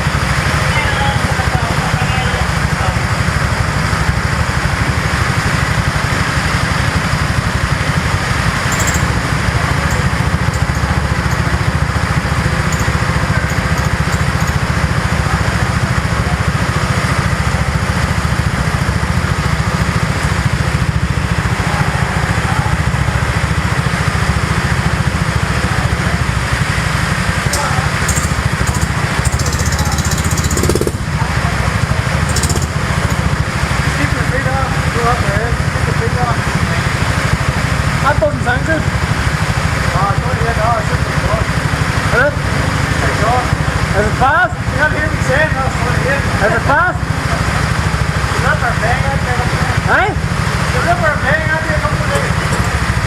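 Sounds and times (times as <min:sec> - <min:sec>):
vehicle engine low rumble: 0:00.0 - 0:53.0.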